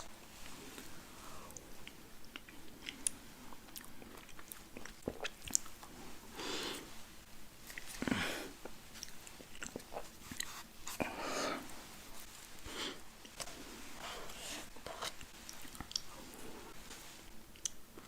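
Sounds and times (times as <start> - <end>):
chewing and biting food: 15.4 - 16.2.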